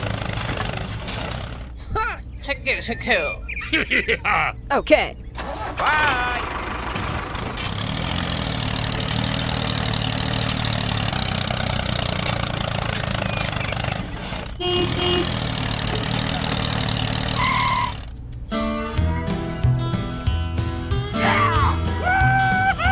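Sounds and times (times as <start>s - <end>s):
vehicle engine idling: 0.0s - 21.2s
horn toots: 14.6s - 18.1s.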